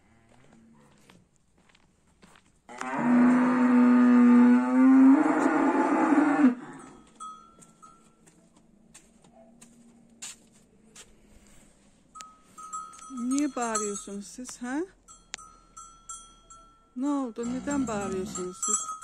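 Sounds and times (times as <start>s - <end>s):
cow mooing: 2.7s - 7.0s, 17.4s - 18.6s.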